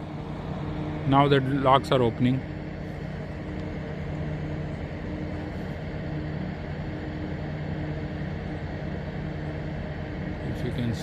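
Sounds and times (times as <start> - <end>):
low mechanical drone: 0.0 - 11.0.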